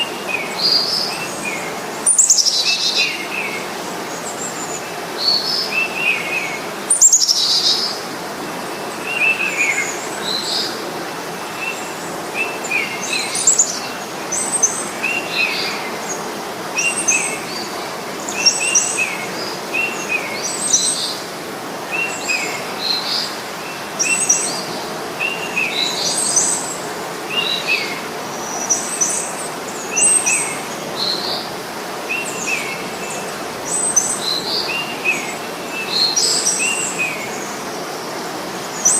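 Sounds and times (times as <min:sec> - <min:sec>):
songbirds chirping: 0:00.0 - 0:38.9
steady background hiss: 0:00.0 - 0:38.9.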